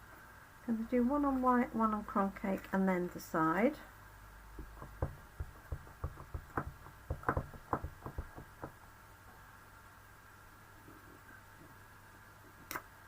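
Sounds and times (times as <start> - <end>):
rubber stamp tapping: 4.6 - 8.8.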